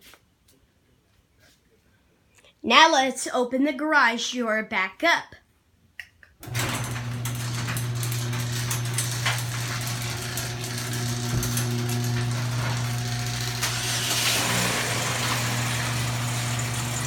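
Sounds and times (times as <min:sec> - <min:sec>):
garage door opener motor hum: 0:06.4 - 0:17.0.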